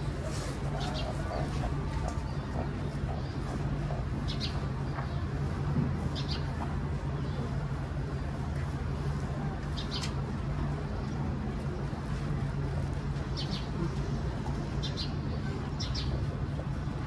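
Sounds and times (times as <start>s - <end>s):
small birds chirping: 0.7s - 7.6s.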